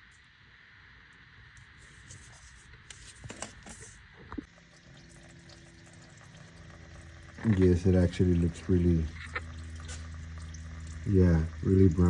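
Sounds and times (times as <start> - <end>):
oil trickling into pan: 4.5 - 12.0.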